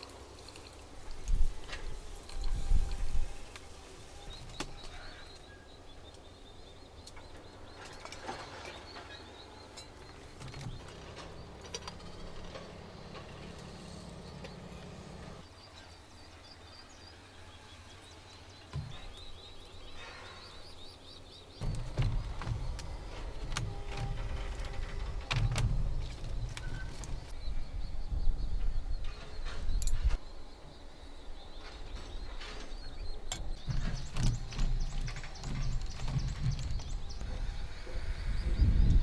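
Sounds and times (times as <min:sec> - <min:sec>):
birds chirping: 0:00.0 - 0:39.0
low outdoor background: 0:00.0 - 0:39.0
small clicks and knocks: 0:07.0 - 0:13.8, 0:21.6 - 0:27.4, 0:31.6 - 0:37.3.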